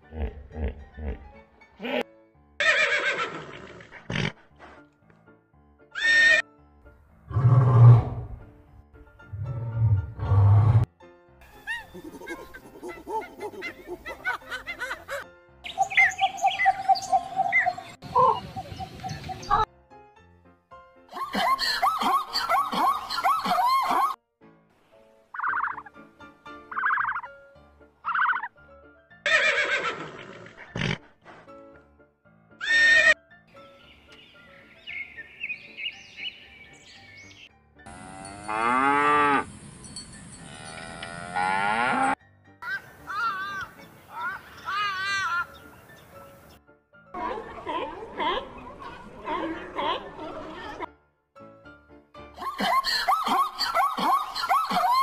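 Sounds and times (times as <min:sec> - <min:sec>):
chirping rise-and-fall calls: 0:15.7 - 0:19.6, 0:34.0 - 0:37.5.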